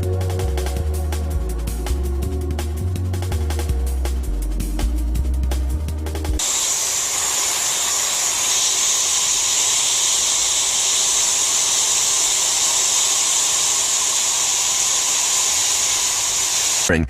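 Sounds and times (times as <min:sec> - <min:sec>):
hot-air blower hissing: 0:06.4 - 0:16.9.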